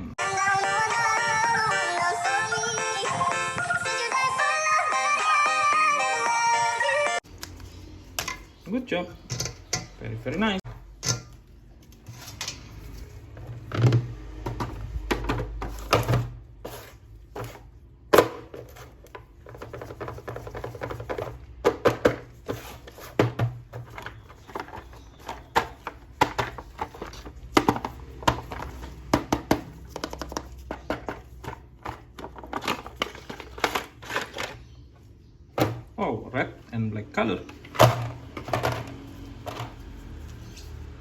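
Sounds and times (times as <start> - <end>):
plastic toys clicking and knocking: 23.2 - 34.7.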